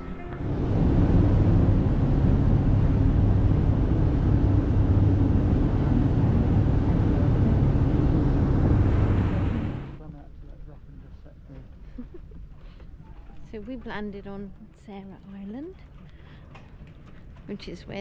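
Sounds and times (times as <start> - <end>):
boat engine hum: 0.0 - 10.0
loud rushing noise: 0.0 - 10.0.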